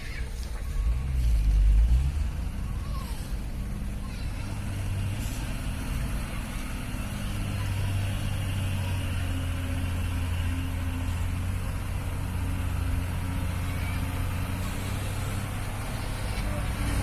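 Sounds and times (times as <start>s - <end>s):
diesel truck engine droning: 0.0s - 17.0s.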